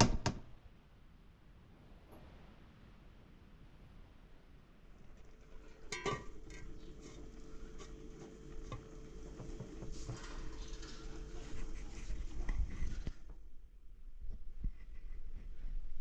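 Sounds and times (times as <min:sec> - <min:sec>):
faint steady hum: 0:00.1 - 0:16.0
utensils and dishes clinking: 0:05.8 - 0:07.2.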